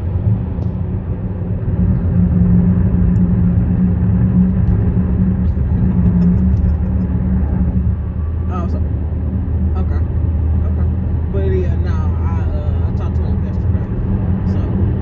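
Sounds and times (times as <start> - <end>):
car tyres rumbling on concrete: 0.0 - 11.8.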